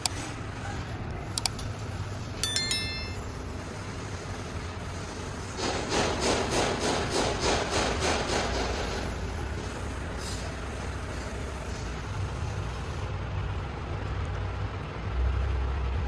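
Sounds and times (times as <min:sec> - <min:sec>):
metal part clinking: 0:02.4 - 0:03.2.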